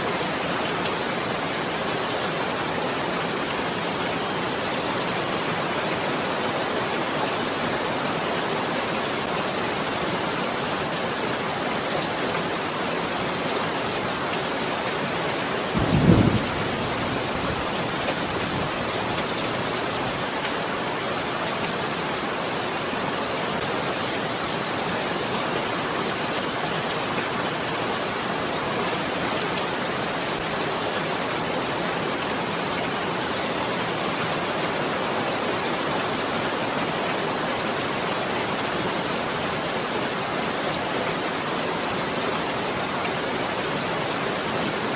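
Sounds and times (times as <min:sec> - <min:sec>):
steady rain: 0:00.0 - 0:44.9
low thunder rumble: 0:15.8 - 0:19.1.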